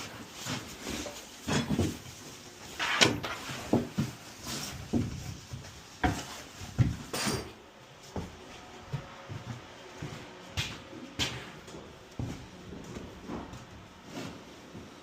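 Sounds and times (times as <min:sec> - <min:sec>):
objects set down: 0:06.8 - 0:07.6.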